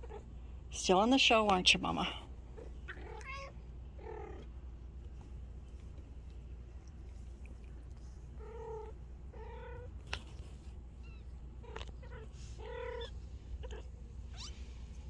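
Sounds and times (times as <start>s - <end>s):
steady low hum: 0.0s - 15.0s
kittens mewing: 2.5s - 4.6s, 8.3s - 14.8s.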